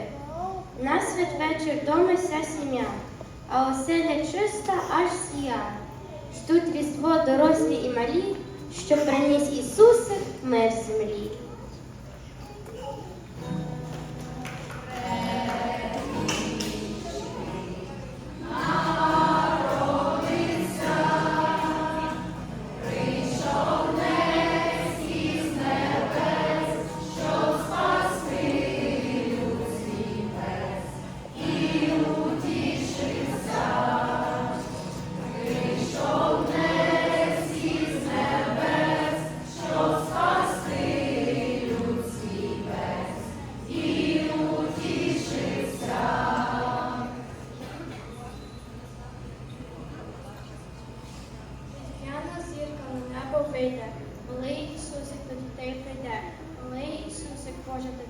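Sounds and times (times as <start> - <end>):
choir singing a carol: 14.8 - 47.9.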